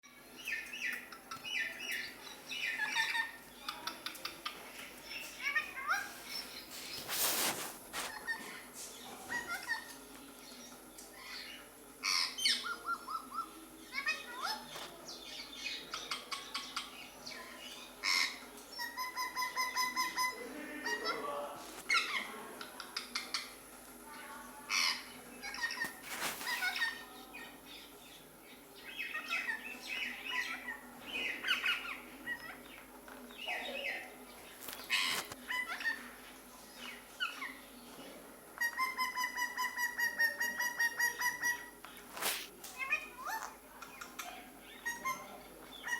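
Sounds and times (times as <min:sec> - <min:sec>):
parrot chirping and squawking: 0:00.5 - 0:03.4, 0:11.3 - 0:13.4, 0:18.0 - 0:21.2, 0:24.7 - 0:27.0, 0:34.8 - 0:36.1, 0:38.6 - 0:45.9.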